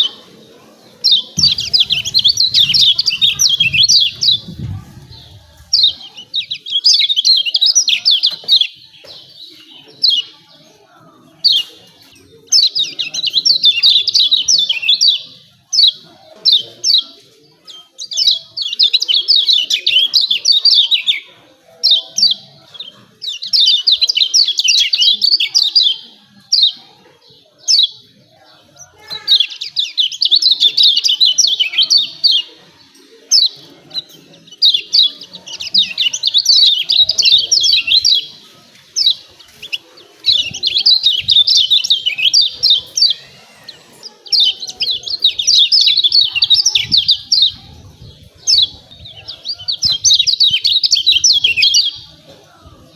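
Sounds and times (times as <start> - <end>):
bird chattering call: 1.4 - 6.0.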